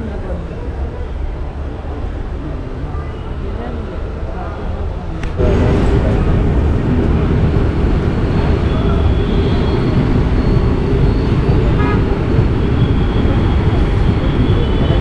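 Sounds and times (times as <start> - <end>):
train rumbling: 5.0 - 15.0.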